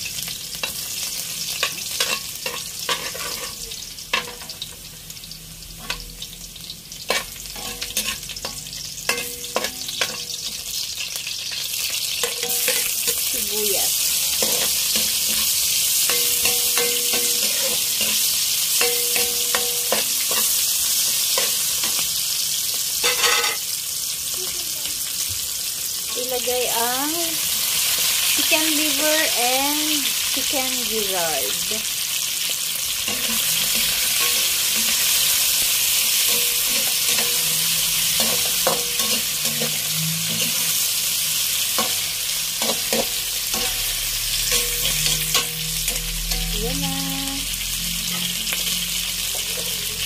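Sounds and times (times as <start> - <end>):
garlic sizzling in hot oil: 0.0 - 50.0
metal spatula scraping pan: 1.6 - 4.5, 7.1 - 10.7, 12.1 - 22.1, 23.0 - 23.7, 33.0 - 49.8.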